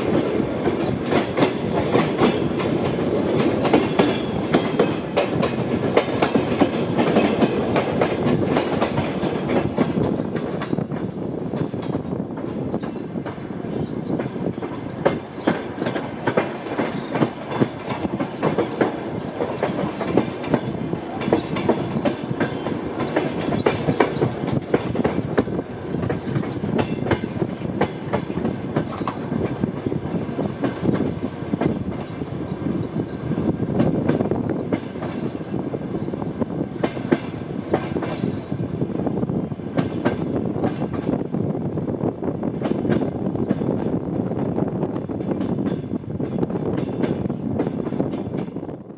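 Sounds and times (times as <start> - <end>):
wheels clattering over rail joints: 0.0 - 38.5
train rumble from inside coach: 0.0 - 48.9.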